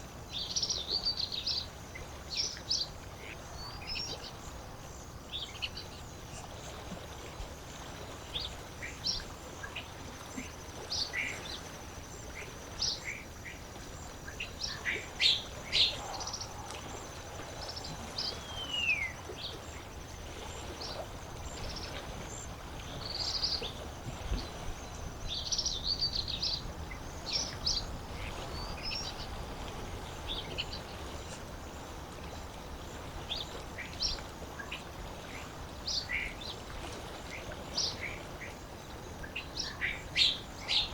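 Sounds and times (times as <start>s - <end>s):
faint steady background hiss: 0.0s - 40.9s.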